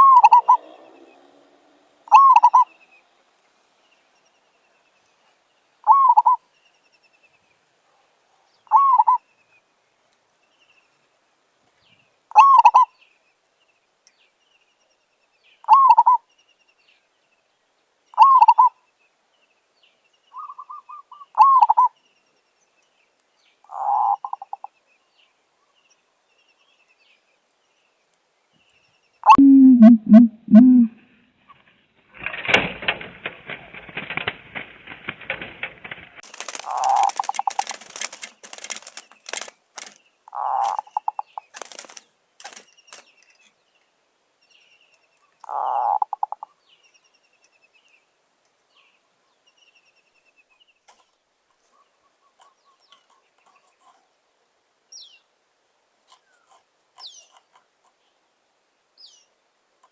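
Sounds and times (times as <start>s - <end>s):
dove calling: 0.0s - 1.0s, 2.0s - 2.8s, 5.8s - 6.5s, 8.6s - 9.2s, 12.3s - 12.9s, 15.6s - 16.2s, 18.1s - 18.8s, 20.4s - 22.0s, 23.7s - 24.7s, 29.2s - 31.6s, 32.2s - 43.4s, 45.4s - 46.6s
lower-pitched bird call: 0.0s - 1.3s, 2.0s - 2.9s, 5.8s - 6.5s, 8.7s - 9.2s, 12.3s - 13.0s, 15.6s - 16.3s, 18.1s - 18.8s, 20.3s - 22.0s, 29.2s - 31.6s.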